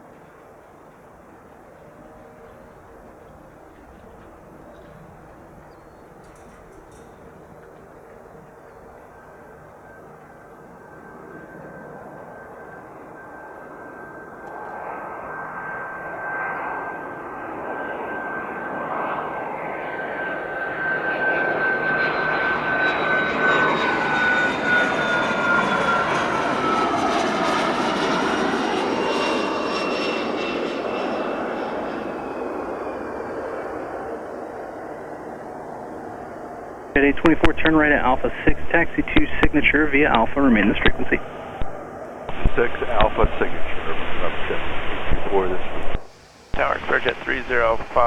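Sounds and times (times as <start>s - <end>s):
jet whine passing: 10.9s - 48.0s.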